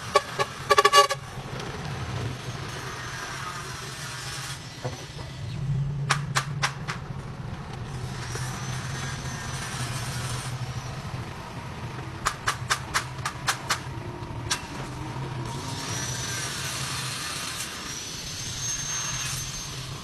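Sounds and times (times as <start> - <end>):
truck engine running: 0.0 - 20.0
sharp clicks: 6.1 - 7.1, 12.2 - 13.9.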